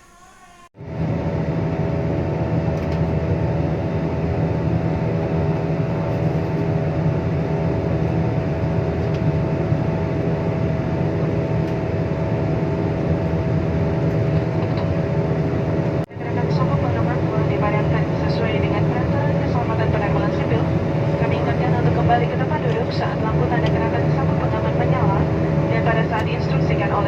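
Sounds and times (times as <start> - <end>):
steady whining tones: 0.0 - 2.2
jet engines low rumble: 0.0 - 27.0.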